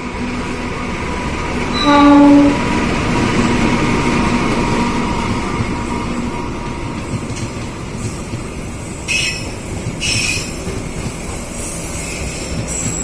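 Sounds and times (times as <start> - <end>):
train rumbling along track: 0.0 - 13.0
high wheel squeals: 7.8 - 13.0.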